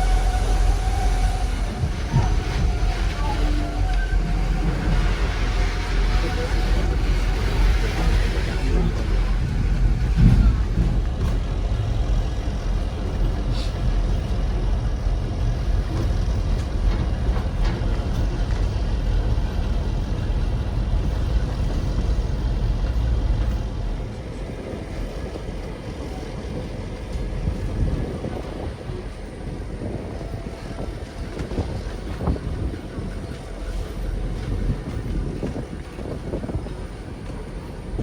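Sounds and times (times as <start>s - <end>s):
train rumbling along track: 0.0s - 38.0s.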